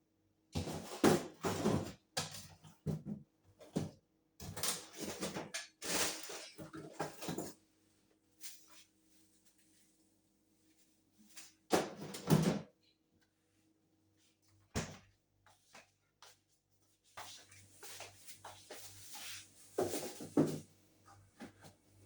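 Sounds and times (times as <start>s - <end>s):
fridge drawers knocking and scraping: 0.6s - 5.6s.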